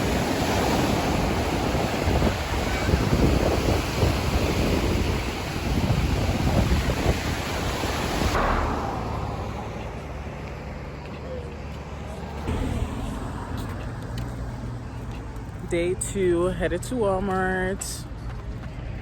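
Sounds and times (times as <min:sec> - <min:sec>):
waves breaking on beach: 0:00.0 - 0:10.7
wind buffeting microphone: 0:00.0 - 0:10.9.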